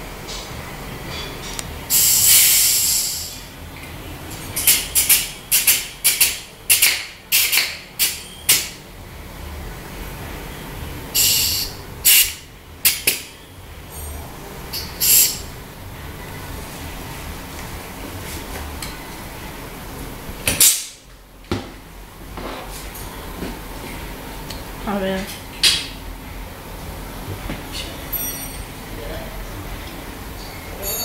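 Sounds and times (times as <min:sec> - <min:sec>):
pressurised spray hissing: 0:01.9 - 0:03.4, 0:11.2 - 0:12.3.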